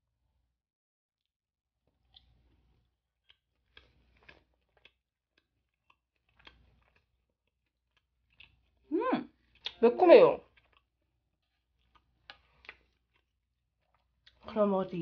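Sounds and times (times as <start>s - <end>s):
person chewing: 1.8s - 9.8s, 10.4s - 14.4s.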